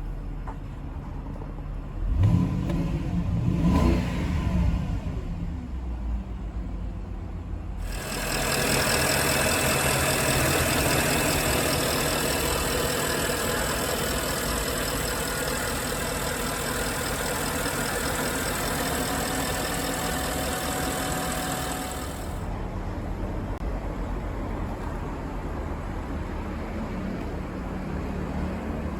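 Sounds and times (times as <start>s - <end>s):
car engine idling: 7.8s - 22.5s.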